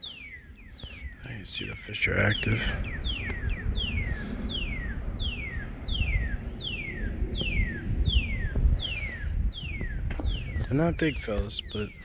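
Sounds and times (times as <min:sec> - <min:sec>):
faint high bird chirps: 0:00.0 - 0:12.0
low rumble: 0:02.3 - 0:11.2.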